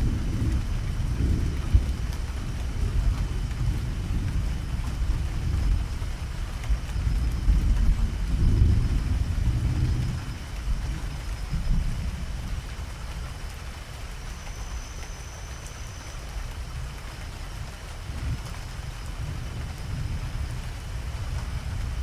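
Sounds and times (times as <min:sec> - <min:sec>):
rolling thunder rumble: 0:00.0 - 0:14.0
steady rain: 0:00.0 - 0:22.0.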